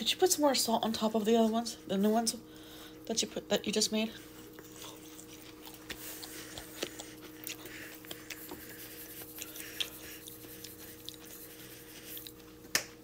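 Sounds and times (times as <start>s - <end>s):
steady low hum: 0.0s - 13.0s
crunches of eating: 4.1s - 13.0s.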